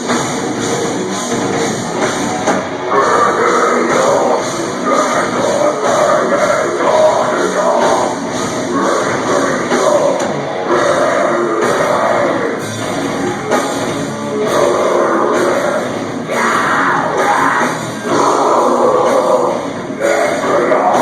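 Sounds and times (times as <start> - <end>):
heavy metal band playing live: 0.0 - 21.0
screamed vocals: 14.2 - 21.0.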